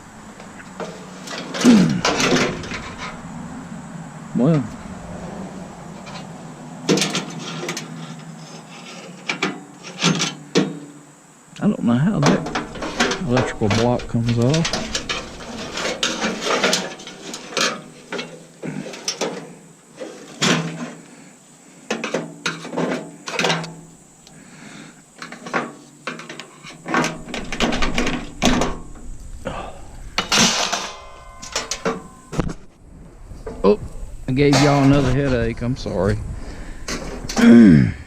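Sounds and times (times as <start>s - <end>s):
hand tools clanking on metal: 0.3s - 3.7s, 5.9s - 10.8s, 11.6s - 21.0s, 21.9s - 23.9s, 25.2s - 32.6s, 34.4s - 35.5s, 36.8s - 37.8s.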